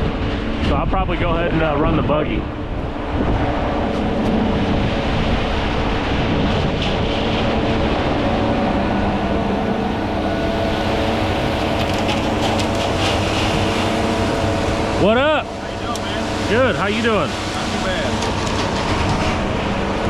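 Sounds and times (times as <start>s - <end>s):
heavy engine running: 0.0s - 20.0s.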